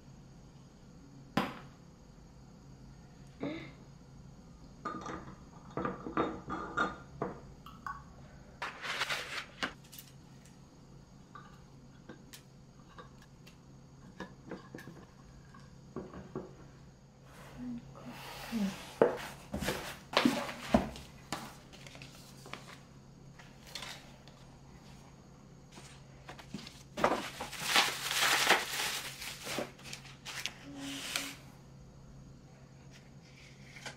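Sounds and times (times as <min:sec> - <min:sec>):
rustling scrape: 0:08.6 - 0:09.6, 0:26.6 - 0:31.4.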